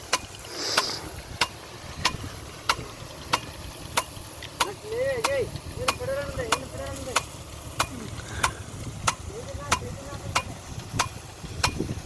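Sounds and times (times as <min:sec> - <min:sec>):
hiss of spraying water: 0:00.0 - 0:12.0
sprinkler arm clacking: 0:00.0 - 0:12.0.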